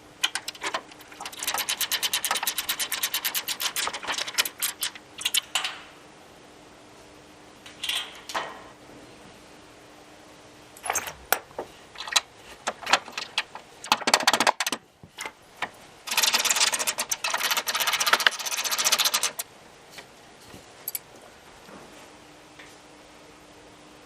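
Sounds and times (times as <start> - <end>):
rapid tool clicking: 0.2 - 5.6, 16.1 - 19.4
metal hardware clinking: 10.8 - 11.4, 20.8 - 21.1.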